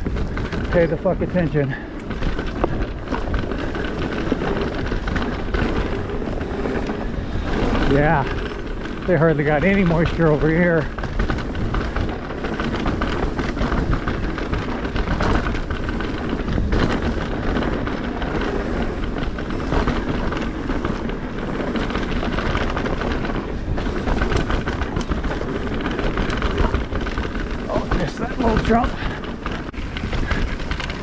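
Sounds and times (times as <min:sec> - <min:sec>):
bike rattling over bumps: 0:00.0 - 0:31.0
bike tyres rushing on dirt: 0:00.0 - 0:31.0.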